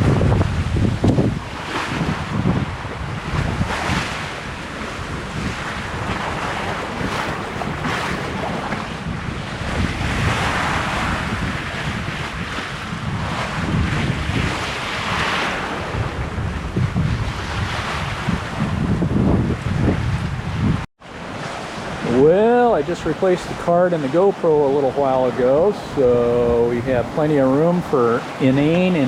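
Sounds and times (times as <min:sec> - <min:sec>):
water rushing along a hull: 0:00.0 - 0:29.0
wind buffeting the microphone: 0:00.0 - 0:29.0
hissing wave wash: 0:21.1 - 0:29.0.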